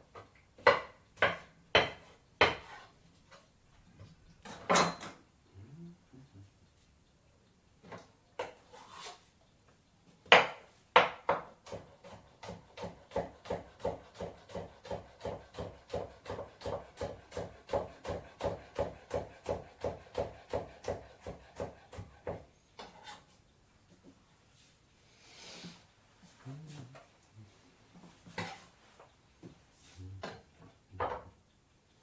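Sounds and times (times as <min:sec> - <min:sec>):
knife chopping on wooden board: 0:00.6 - 0:02.8, 0:10.3 - 0:22.4.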